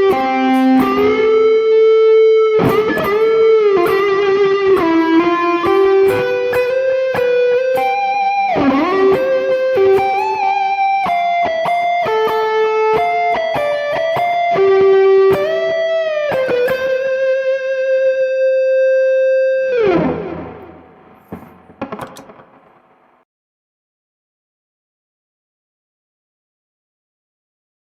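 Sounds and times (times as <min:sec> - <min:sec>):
electric guitar lead melody: 0:00.0 - 0:22.9
guitar string noises: 0:00.0 - 0:23.0.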